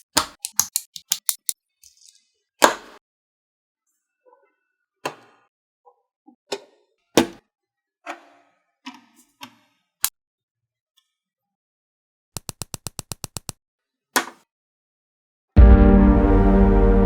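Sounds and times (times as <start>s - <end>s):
plastic bricks clicking together: 0.0s - 2.2s.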